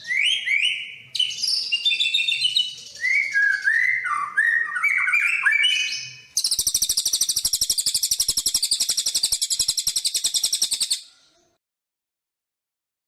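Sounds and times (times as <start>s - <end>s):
songbird high trill: 3.6s - 11.1s.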